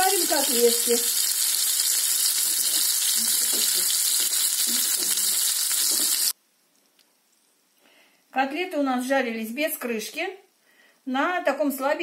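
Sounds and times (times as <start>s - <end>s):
cutlets sizzling in oil: 0.0s - 6.4s.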